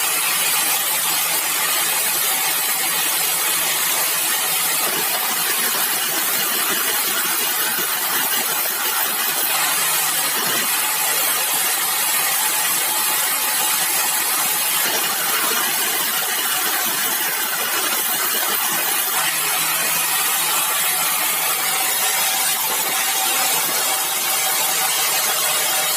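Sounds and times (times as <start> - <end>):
sawmill machinery hissing: 0.0 - 25.9.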